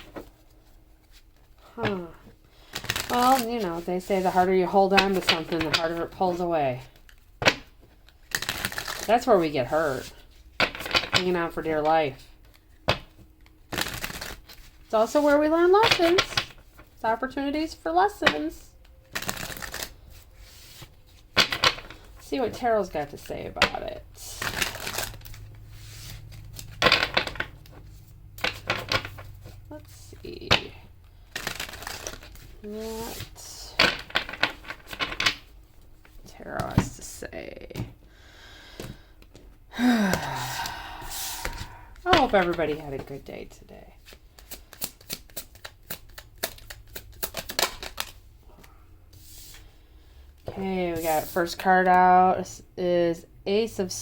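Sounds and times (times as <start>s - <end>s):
cards being shuffled: 1.0s - 11.4s, 12.3s - 17.0s, 19.1s - 36.9s, 40.0s - 43.2s, 44.0s - 48.3s.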